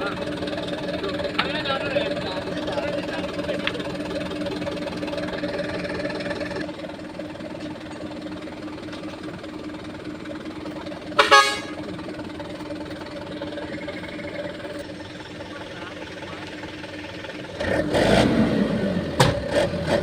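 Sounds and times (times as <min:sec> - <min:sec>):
truck engine idling: 0:00.0 - 0:20.0
vehicle horn toot: 0:11.1 - 0:11.9.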